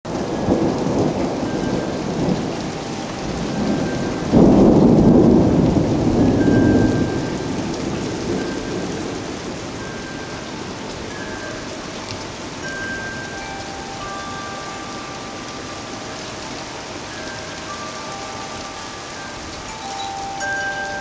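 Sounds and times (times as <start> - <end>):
thunder rumbling: 0.1 - 10.8
steady rain falling: 0.1 - 21.0.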